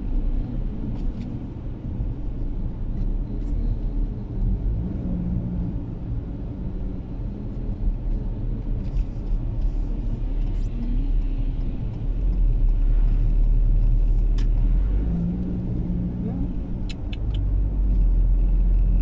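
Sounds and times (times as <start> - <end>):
car engine and tyre rumble: 0.0 - 19.0
sharp click: 16.8 - 17.5.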